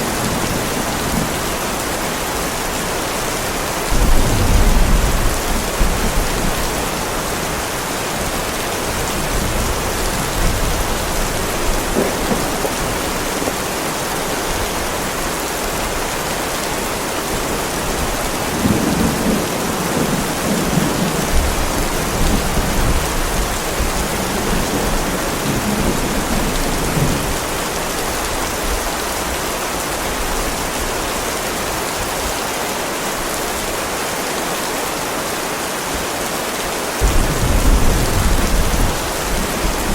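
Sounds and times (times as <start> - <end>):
heavy rain on driveway: 0.0 - 39.9
low thunder rumbling: 3.8 - 16.0, 17.3 - 27.5, 37.0 - 39.9.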